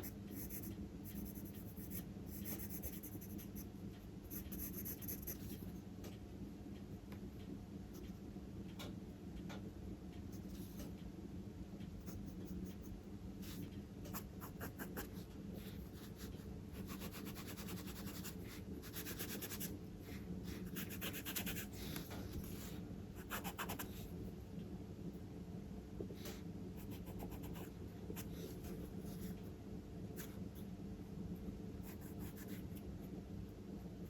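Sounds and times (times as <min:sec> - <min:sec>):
faint low hum: 0:00.0 - 0:34.0
charcoal scratching on paper: 0:16.0 - 0:22.6.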